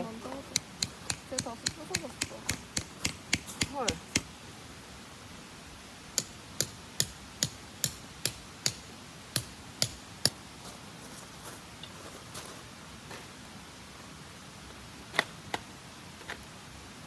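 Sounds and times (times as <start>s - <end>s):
hammer striking tent pegs: 0.5s - 4.3s, 6.2s - 10.4s.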